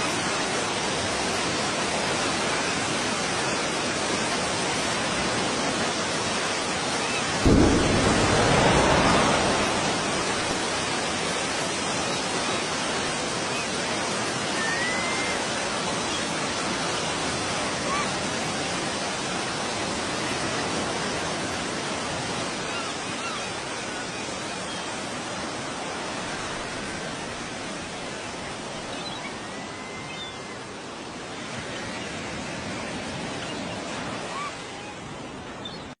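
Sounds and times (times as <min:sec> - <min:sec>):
steady rushing roar: 0:07.4 - 0:12.0.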